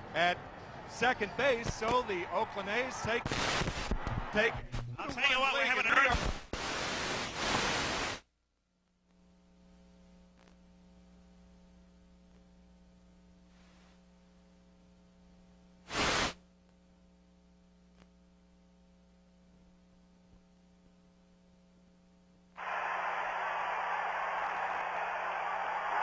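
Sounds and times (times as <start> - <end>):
static burst: 3.2 - 4.0, 5.9 - 8.2, 15.9 - 16.4
faint hiss: 6.2 - 8.2, 15.8 - 16.4.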